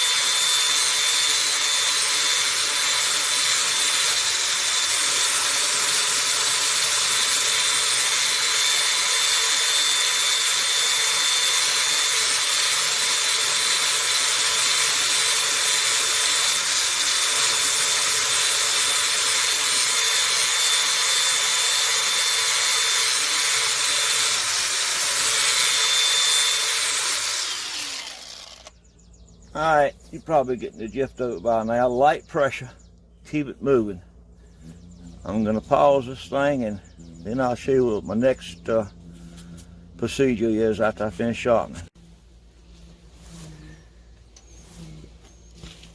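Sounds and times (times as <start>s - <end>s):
power sander grinding metal: 0.0s - 28.8s.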